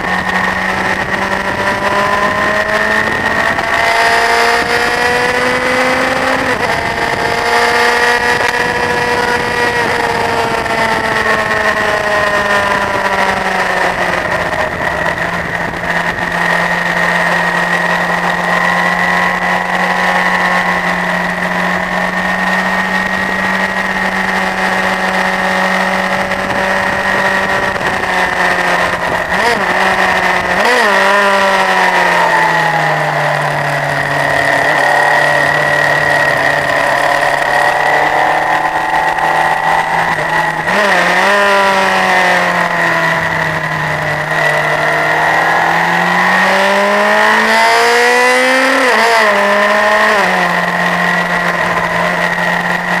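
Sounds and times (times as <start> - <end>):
wind noise rushing: 0.0 - 52.5
motorcycle engine at high revs: 0.0 - 53.0.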